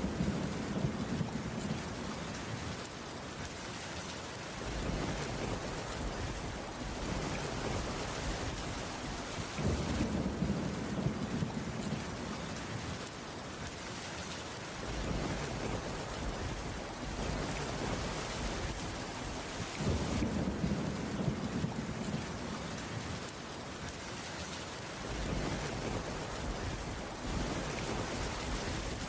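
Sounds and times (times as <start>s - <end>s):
low thunder rumbles: 0.0s - 2.2s, 4.6s - 13.1s, 14.8s - 23.3s, 25.0s - 29.0s
steady rainfall: 0.0s - 29.0s.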